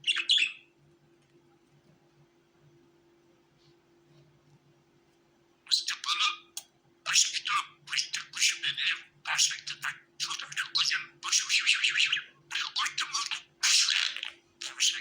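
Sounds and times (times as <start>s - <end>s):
budgerigars chattering: 5.7s - 6.5s, 7.1s - 15.0s.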